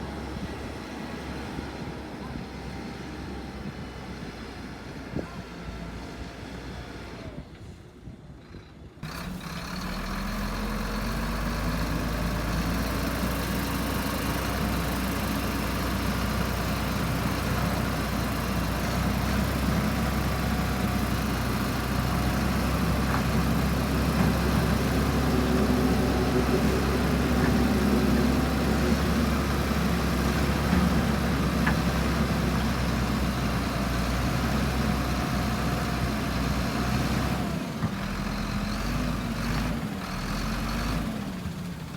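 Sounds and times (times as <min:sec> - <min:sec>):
heavy diesel machinery engine: 0:00.0 - 0:41.9.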